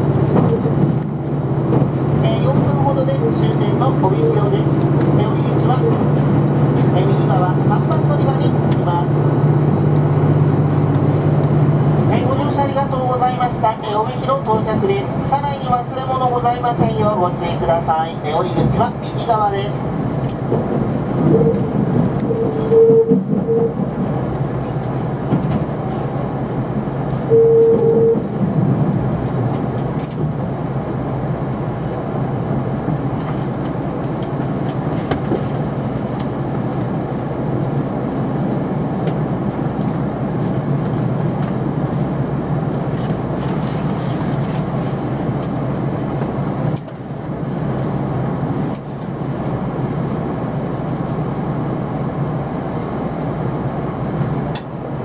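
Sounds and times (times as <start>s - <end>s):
train running noise inside cabin: 0.0s - 55.0s
short tone: 22.3s - 23.7s, 27.3s - 28.3s.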